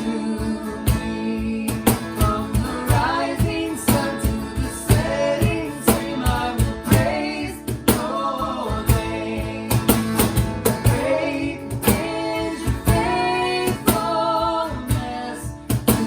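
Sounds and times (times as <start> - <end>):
guitar: 0.0 - 16.0
woman singing: 0.0 - 16.0
drum beat: 1.9 - 14.2.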